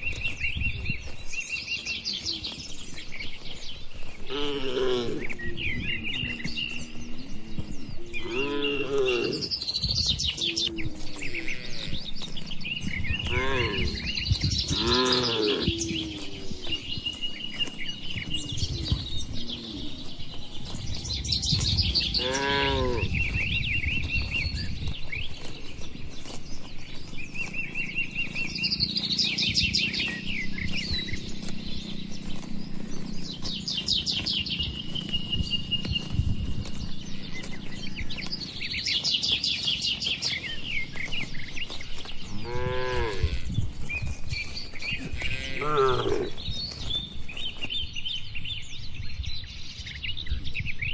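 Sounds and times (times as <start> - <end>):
small birds chirping: 0.0 - 50.9
cattle mooing: 4.2 - 5.4, 8.1 - 9.6, 10.4 - 12.4, 13.1 - 17.8, 22.0 - 23.3, 42.1 - 43.9, 44.9 - 46.4.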